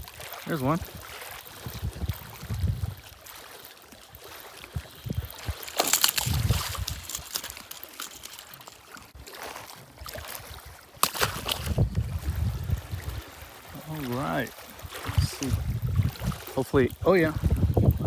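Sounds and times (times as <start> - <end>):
water splashing and trickling: 0.0 - 18.0
small clicks: 5.6 - 9.1.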